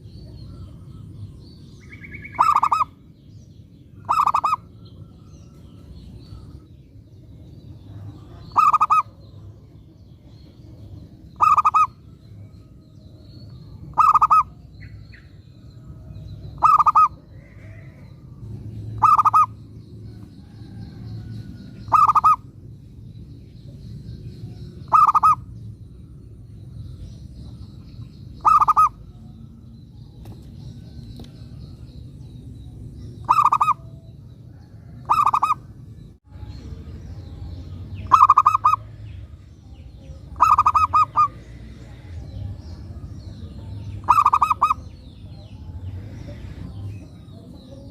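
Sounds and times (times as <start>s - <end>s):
dove cooing: 2.0s - 2.9s, 4.0s - 4.7s, 8.2s - 9.2s, 11.4s - 11.9s, 13.9s - 14.6s, 16.6s - 18.0s, 18.9s - 19.6s, 21.9s - 22.4s, 24.9s - 25.4s, 28.4s - 29.1s, 33.2s - 33.8s, 34.7s - 35.6s, 38.0s - 38.9s, 40.3s - 41.7s, 44.0s - 44.8s.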